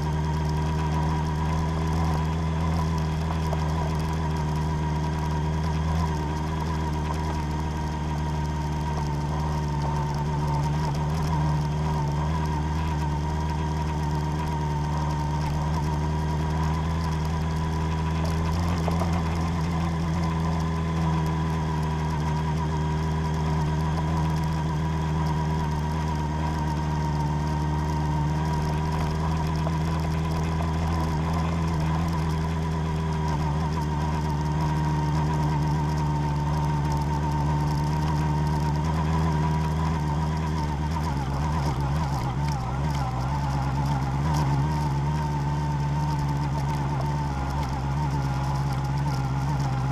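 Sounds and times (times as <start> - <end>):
vehicle engine running: 0.0 - 49.9.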